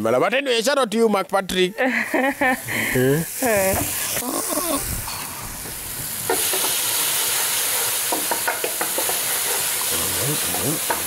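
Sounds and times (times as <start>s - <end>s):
tomatoes and garlic sizzling in pan: 2.3s - 11.0s
spoon stirring and scraping pan: 6.3s - 11.0s.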